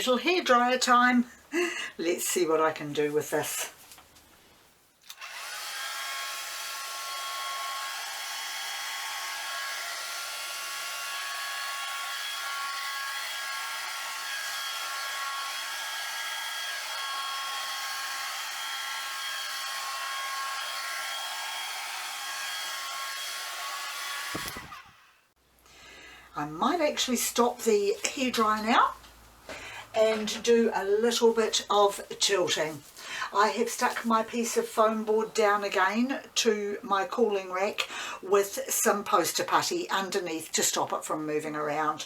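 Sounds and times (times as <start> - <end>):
hair dryer running: 5.2 - 25.1.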